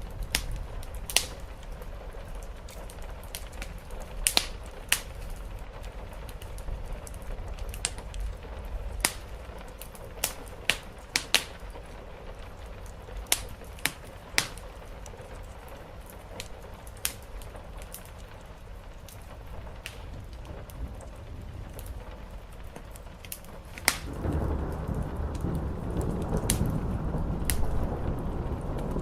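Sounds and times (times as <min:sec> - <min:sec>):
wood fire crackling: 0:00.0 - 0:29.0
low rumble: 0:24.1 - 0:29.0.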